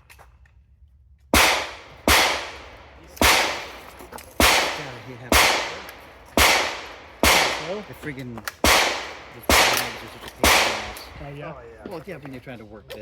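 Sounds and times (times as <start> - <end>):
gunshots with echo: 1.4 - 11.4.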